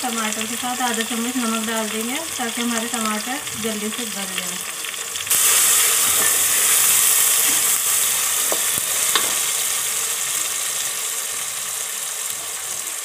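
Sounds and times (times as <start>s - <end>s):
vegetables sizzling in hot oil: 0.0s - 13.0s
spatula scraping a metal pot: 5.8s - 7.8s.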